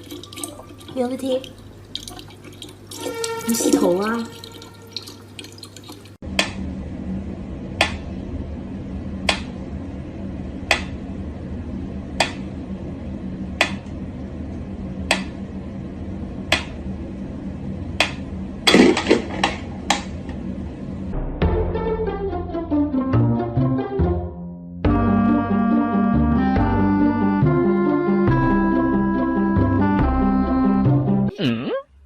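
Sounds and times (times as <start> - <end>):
low steady hum: 0.0 - 22.8.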